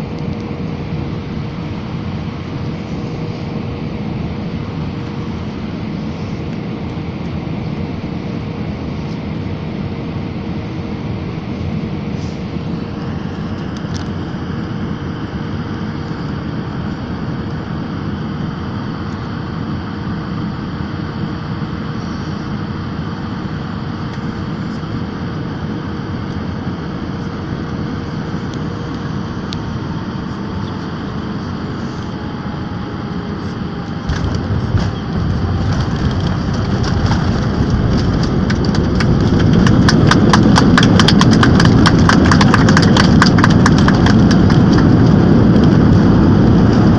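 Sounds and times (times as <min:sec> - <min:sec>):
engine and airflow noise: 0:00.0 - 0:46.9
low rumble of wheels on runway: 0:00.0 - 0:46.9
faint whine falling in pitch: 0:12.5 - 0:46.9.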